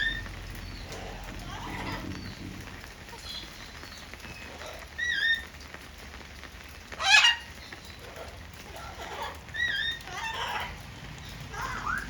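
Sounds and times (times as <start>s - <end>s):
parrot harsh squawk: 11.5s - 12.0s.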